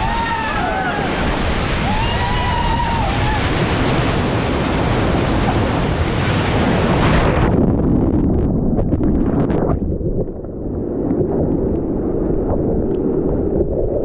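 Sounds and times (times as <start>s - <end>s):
waves crashing: 0.0s - 7.5s
wind buffeting microphone: 0.0s - 14.0s.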